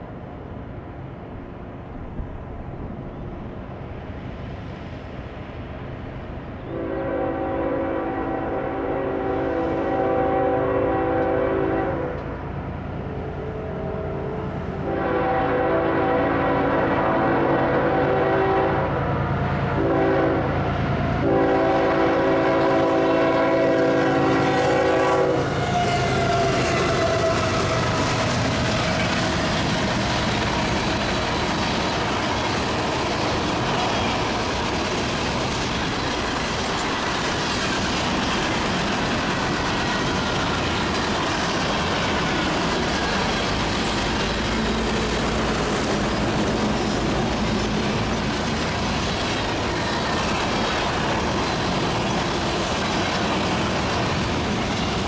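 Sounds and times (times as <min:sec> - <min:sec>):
freight train rolling past: 0:00.0 - 0:55.0
locomotive air horn blasts: 0:06.7 - 0:12.2, 0:13.1 - 0:19.0, 0:19.8 - 0:20.6, 0:21.2 - 0:28.0.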